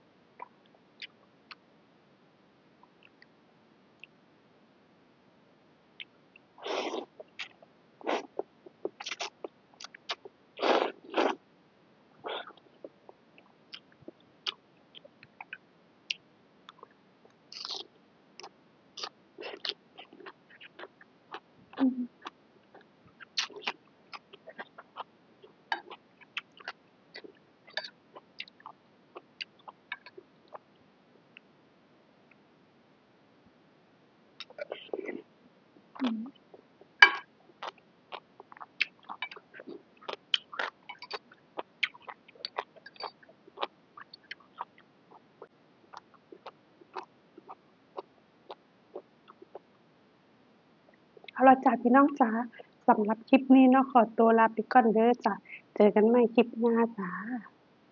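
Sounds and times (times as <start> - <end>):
person chewing and smacking: 7.3 - 10.3, 16.7 - 17.8, 18.4 - 21.4, 22.2 - 25.1, 25.7 - 30.6, 36.8 - 44.8, 45.9 - 49.6.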